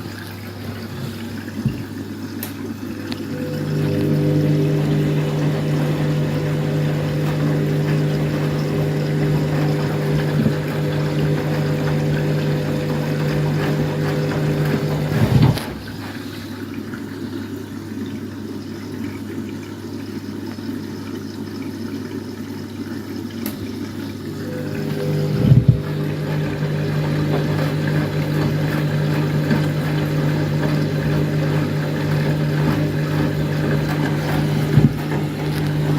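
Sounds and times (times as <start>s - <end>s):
washing machine motor hum: 0.0s - 19.4s, 23.5s - 35.9s
water running into drum: 0.0s - 35.9s
washing machine knock: 4.6s - 16.0s, 24.7s - 35.9s.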